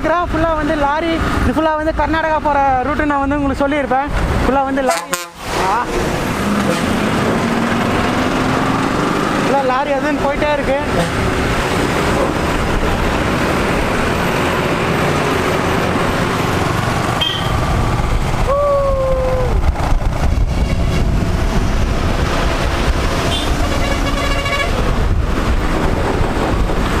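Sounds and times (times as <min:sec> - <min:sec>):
motorcycle engine and wind rumble: 0:00.0 - 0:04.8, 0:07.0 - 0:27.0
vehicle horn: 0:04.9 - 0:05.4, 0:17.2 - 0:17.6, 0:20.5 - 0:21.1, 0:23.3 - 0:24.8.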